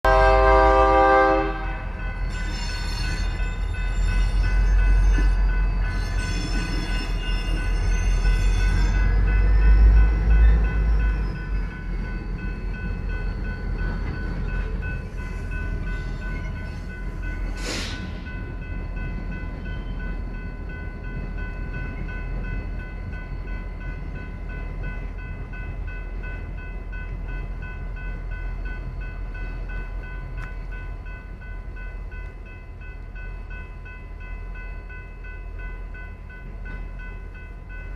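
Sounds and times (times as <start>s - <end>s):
locomotive horn blasts: 0.0s - 2.0s
train cars rolling by: 0.1s - 37.9s.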